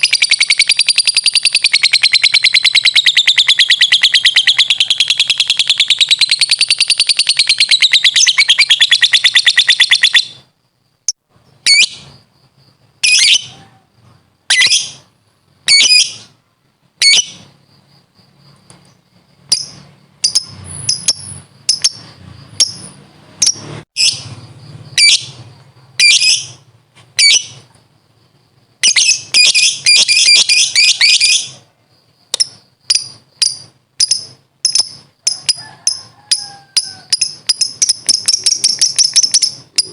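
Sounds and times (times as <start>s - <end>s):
bird sharp chirps: 0.0s - 10.5s, 19.4s - 27.7s, 28.8s - 31.6s, 36.4s - 39.9s
lovebird shrill chattering trill: 0.0s - 10.5s, 11.6s - 12.2s, 13.0s - 13.8s, 14.5s - 16.3s, 17.0s - 17.5s, 19.5s - 27.7s, 28.8s - 31.6s, 32.3s - 39.9s.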